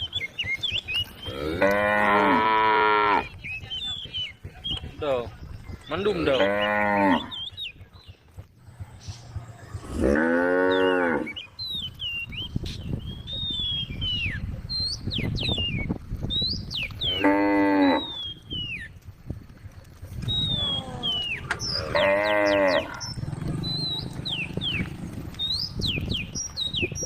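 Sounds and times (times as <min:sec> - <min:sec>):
cow mooing: 0:01.3 - 0:03.3, 0:06.3 - 0:07.3, 0:09.8 - 0:11.4, 0:17.1 - 0:18.2, 0:20.6 - 0:24.6.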